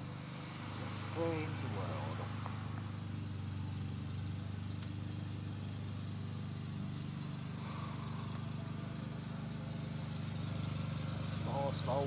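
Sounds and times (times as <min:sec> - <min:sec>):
engine humming steadily: 0:00.0 - 0:12.0
sharp click: 0:04.8 - 0:05.0.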